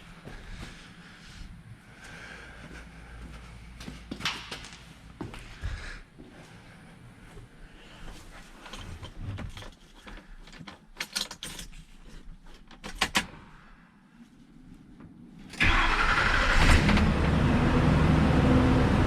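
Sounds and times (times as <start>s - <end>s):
truck engine starting and running: 15.5s - 19.0s.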